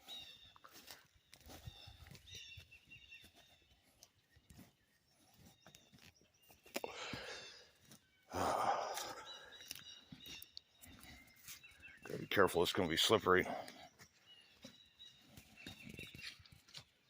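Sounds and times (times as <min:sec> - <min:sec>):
person exhaling heavily: 0:08.3 - 0:09.2.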